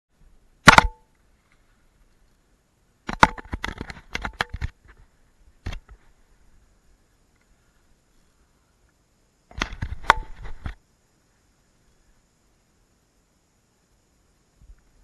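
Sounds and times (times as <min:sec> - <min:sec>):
sharp clicks and knocks: 0:03.0 - 0:05.0, 0:05.6 - 0:06.0, 0:09.5 - 0:10.8.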